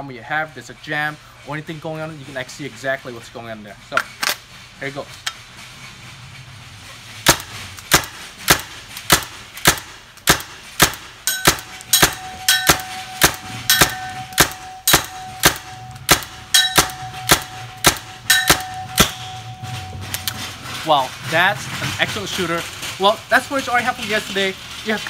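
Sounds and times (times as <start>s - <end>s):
thin ringing tone: 11.3s - 20.8s.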